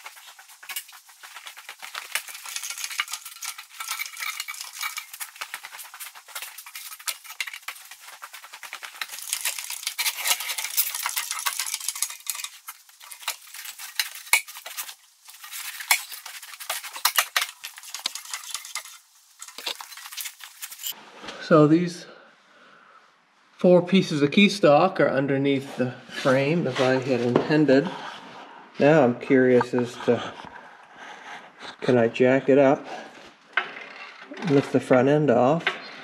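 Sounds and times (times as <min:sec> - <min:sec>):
steel parts clinking and scraping: 0:00.0 - 0:21.0.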